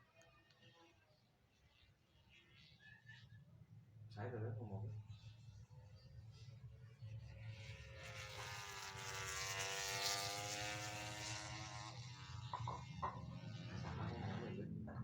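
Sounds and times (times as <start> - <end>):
race motorcycle passing: 7.4 - 15.0.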